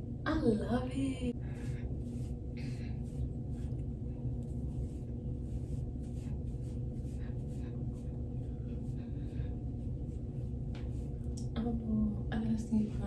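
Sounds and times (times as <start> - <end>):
steady low hum: 0.0 - 13.0
rustling and handling noises: 1.5 - 11.4.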